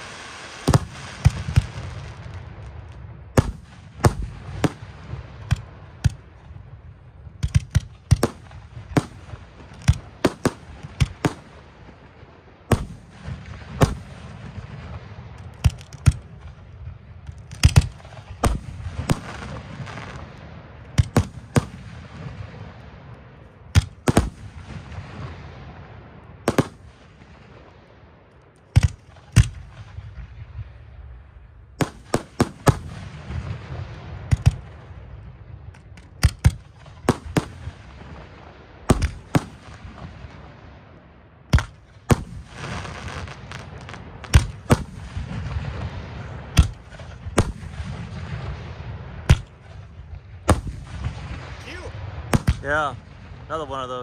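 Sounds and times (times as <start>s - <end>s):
steady hiss: 0.0s - 2.8s
fireworks shells bursting: 15.4s - 16.6s.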